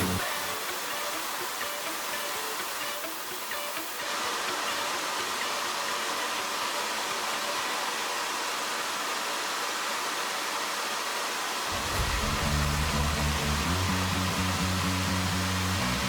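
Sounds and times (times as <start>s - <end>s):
rushing air hiss: 0.0s - 4.1s, 11.7s - 16.0s
music: 0.0s - 7.8s, 11.7s - 16.0s.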